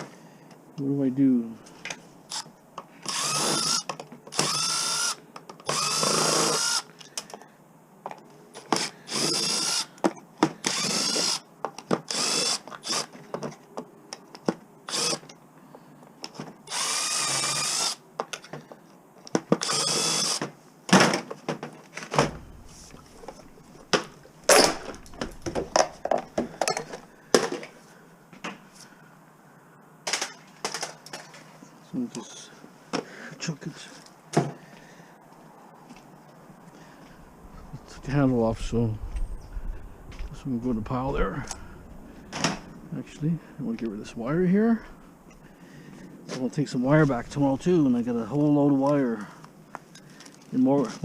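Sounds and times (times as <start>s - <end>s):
power drill whining: 3.0s - 6.9s, 8.6s - 10.0s, 10.6s - 11.4s, 12.1s - 13.1s, 14.9s - 15.3s, 16.7s - 18.0s, 19.6s - 20.4s.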